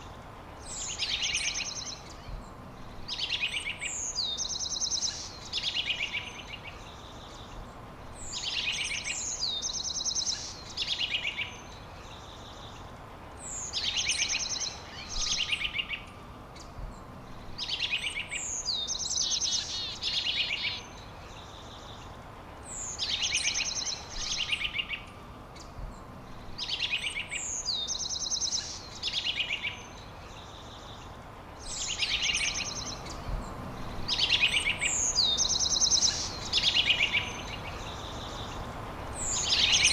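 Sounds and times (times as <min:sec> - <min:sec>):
steady background hiss: 0:00.0 - 0:39.9
songbird singing trilled phrase: 0:31.7 - 0:38.6.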